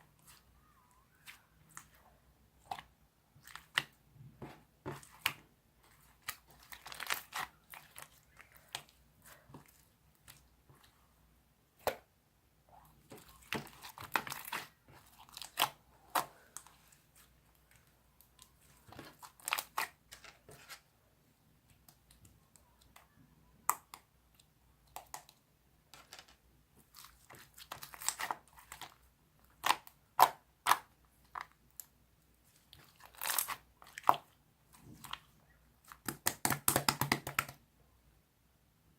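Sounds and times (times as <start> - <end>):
sticky slime popping: 35.9 - 37.6.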